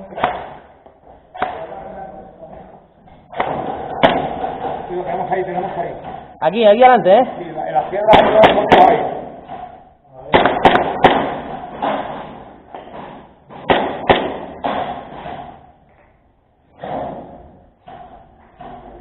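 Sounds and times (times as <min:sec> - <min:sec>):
airsoft gun shots: 0:10.3 - 0:12.2, 0:13.5 - 0:15.2.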